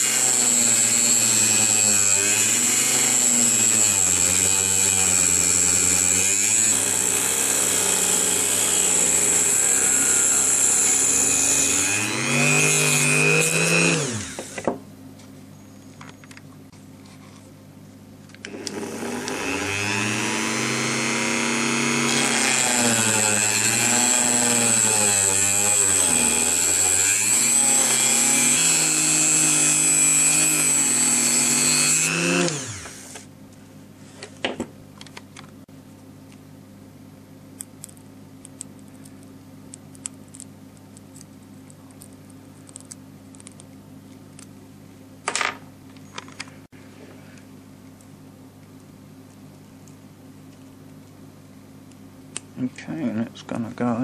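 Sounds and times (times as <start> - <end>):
rotary tool cutting: 0.0 - 14.7, 18.5 - 33.3.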